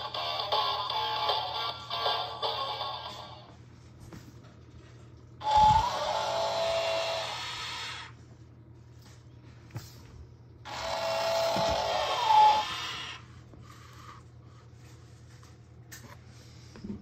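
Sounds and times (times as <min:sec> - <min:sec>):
toy electronic sound effect: 0:05.4 - 0:08.1, 0:10.7 - 0:13.3.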